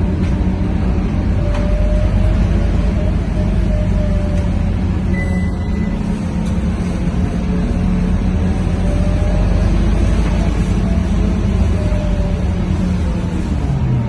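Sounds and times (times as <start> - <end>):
bus diesel engine running: 0.0 - 14.0
tyre and road noise: 0.0 - 14.0
short high tone: 5.1 - 6.0.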